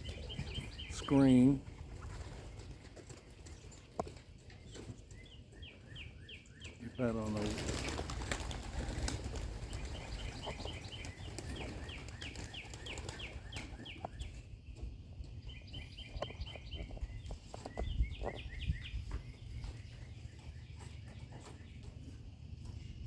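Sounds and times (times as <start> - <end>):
songbird chirping: 0.0 - 23.0
wind rumble on microphone: 14.0 - 21.5.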